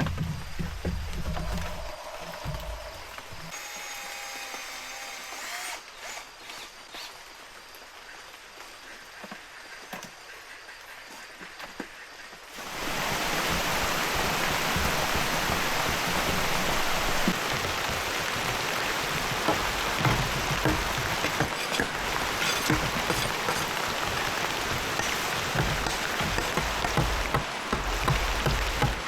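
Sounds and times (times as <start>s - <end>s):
heavy rain pouring: 12.5s - 29.0s
sharp raindrop impacts: 12.6s - 29.0s.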